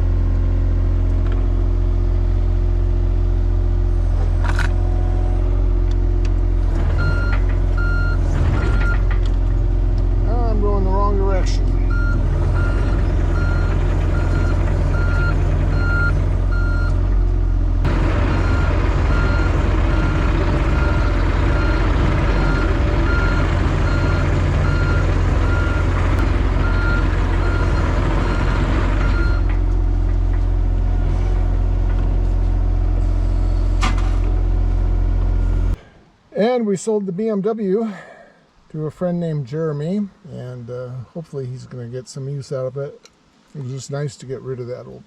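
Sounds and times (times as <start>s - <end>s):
excavator diesel engine running: 0.0s - 35.8s
travel alarm beeping: 11.9s - 17.0s, 26.6s - 29.5s.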